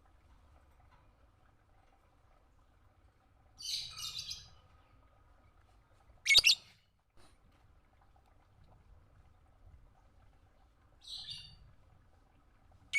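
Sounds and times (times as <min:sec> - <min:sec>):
bird chirping shrilly: 0:06.3 - 0:06.6.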